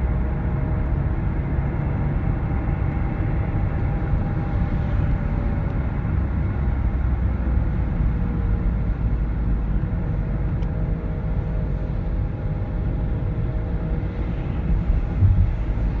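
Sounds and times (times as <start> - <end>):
car engine rumble: 0.0 - 16.0
low thump: 14.9 - 15.8.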